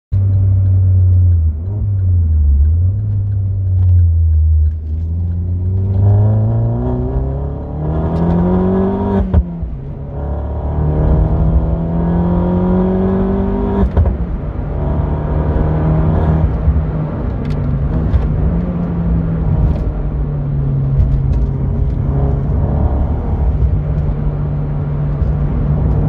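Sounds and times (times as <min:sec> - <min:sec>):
car engine accelerating: 0:00.2 - 0:26.0.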